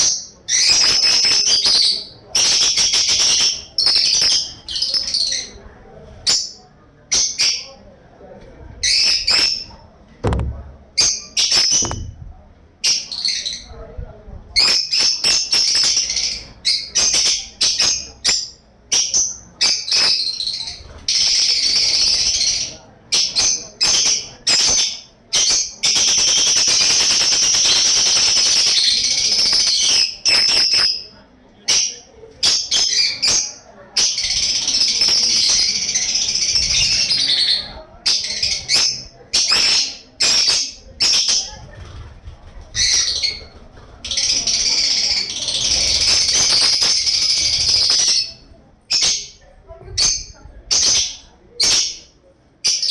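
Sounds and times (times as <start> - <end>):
bird harsh rasping calls: 0.0 - 5.6, 14.6 - 31.1, 31.7 - 49.4.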